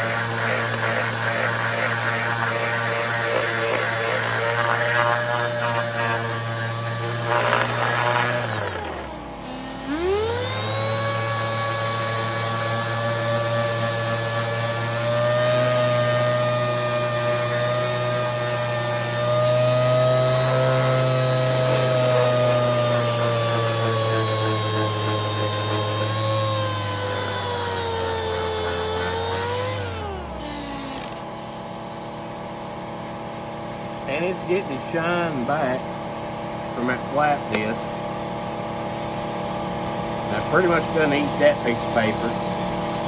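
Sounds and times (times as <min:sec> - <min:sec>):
electric sander on metal: 0:00.0 - 0:31.3, 0:36.8 - 0:37.8, 0:40.3 - 0:42.6.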